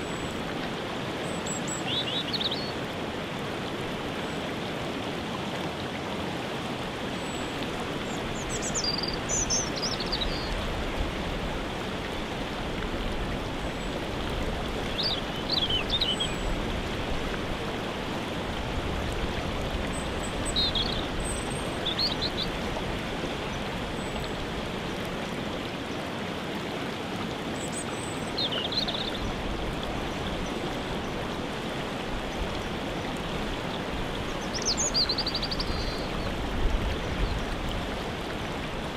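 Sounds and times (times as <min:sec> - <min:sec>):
waterfall rushing: 0:00.0 - 0:38.9
songbird singing: 0:01.2 - 0:02.8, 0:07.2 - 0:10.6, 0:14.9 - 0:16.6, 0:19.9 - 0:22.6, 0:27.6 - 0:31.2, 0:34.2 - 0:37.5.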